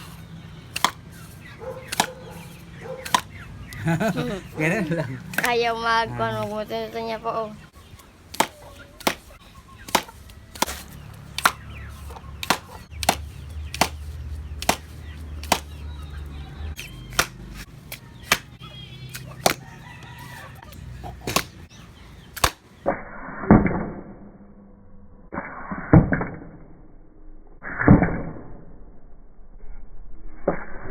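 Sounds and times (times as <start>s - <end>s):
sharp knocks: 12.4s - 15.7s.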